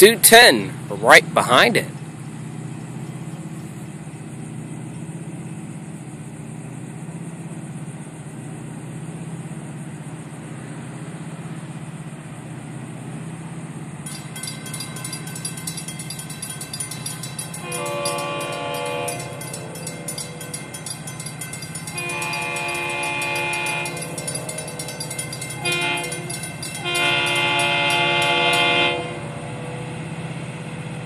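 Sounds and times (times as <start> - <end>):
train low rumble: 0.0 - 31.0
rapid ringing bell: 14.1 - 29.2
locomotive horn chord: 14.1 - 29.8.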